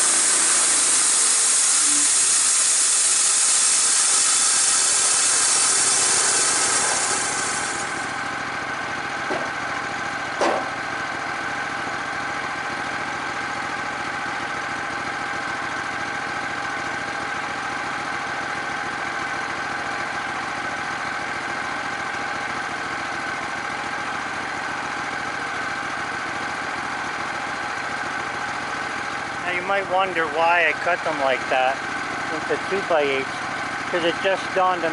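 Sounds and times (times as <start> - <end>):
saw blade cutting wood hiss: 0.0 - 8.2
gas engine running: 0.0 - 34.9
short knocks: 9.3 - 9.6, 10.4 - 10.8.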